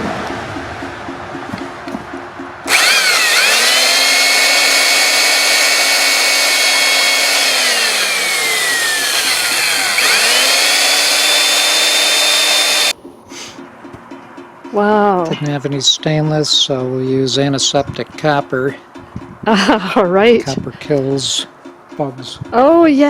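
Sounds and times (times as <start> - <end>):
power drill boring into wood: 2.7 - 12.9.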